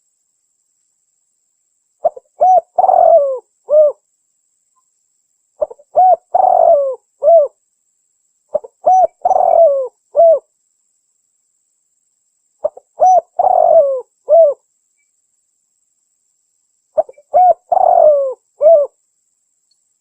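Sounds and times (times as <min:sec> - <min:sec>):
dove cooing: 0:02.0 - 0:04.0, 0:05.6 - 0:07.6, 0:08.5 - 0:10.5, 0:12.6 - 0:14.6, 0:17.0 - 0:19.0.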